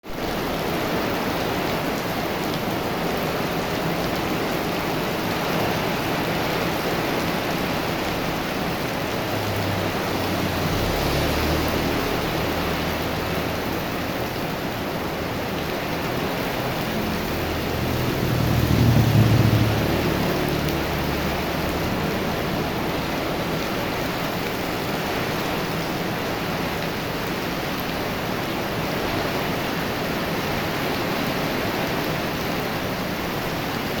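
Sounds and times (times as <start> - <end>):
heavy rain pouring: 0.0 - 34.0
low rumble: 16.3 - 23.5.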